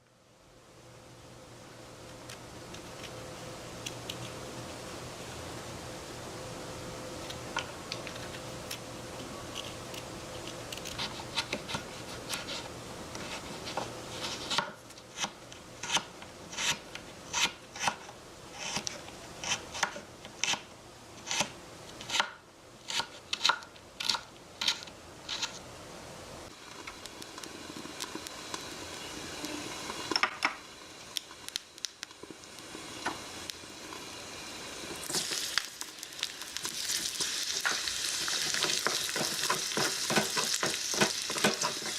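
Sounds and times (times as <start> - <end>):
utensils scraping: 22.9 - 25.6.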